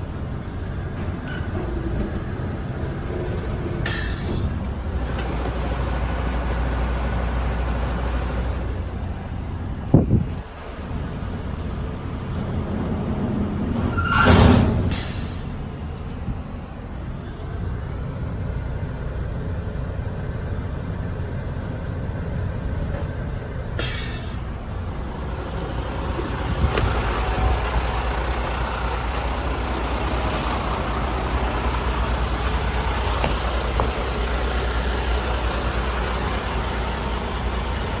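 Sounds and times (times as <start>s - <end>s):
diesel truck engine running: 0.0s - 38.0s
air brake hiss: 3.9s - 4.7s, 14.9s - 15.7s, 23.8s - 24.6s.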